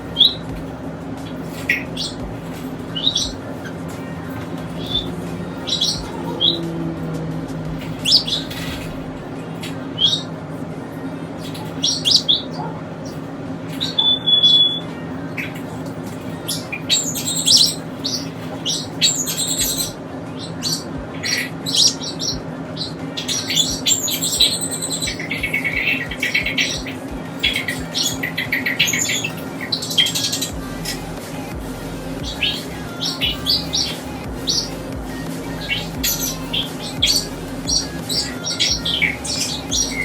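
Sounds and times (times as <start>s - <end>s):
pet birds chirping and squawking: 0.0s - 0.6s, 1.3s - 10.3s, 11.4s - 40.0s
steady low hum: 0.0s - 40.0s
bird whistle: 13.8s - 14.9s.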